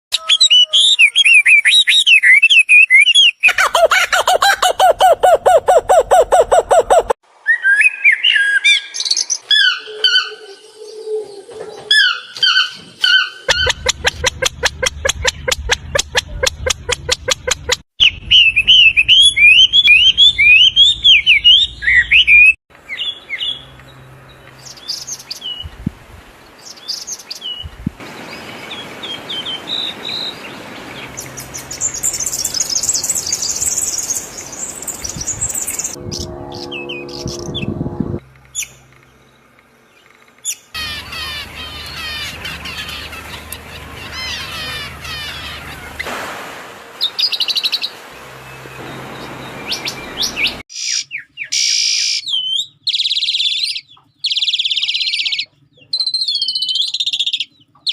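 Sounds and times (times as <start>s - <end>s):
birds chirping: 0.1s - 46.1s, 47.0s - 57.9s
rapid repeated bird chirps: 12.3s - 23.6s, 50.4s - 57.9s.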